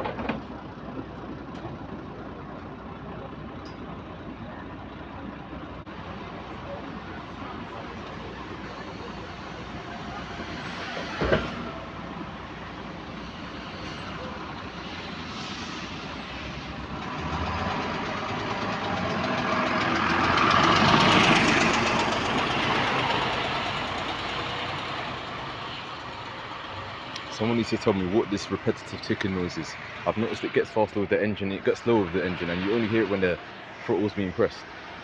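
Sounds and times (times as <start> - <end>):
bus engine running: 0.0 - 35.0
repetitive engine ticking: 17.2 - 29.4.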